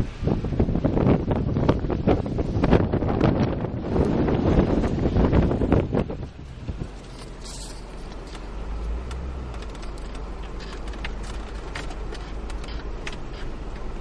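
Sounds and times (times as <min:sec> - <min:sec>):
car engine and tyres rumbling: 0:00.0 - 0:14.0
sharp ticks: 0:09.1 - 0:13.9.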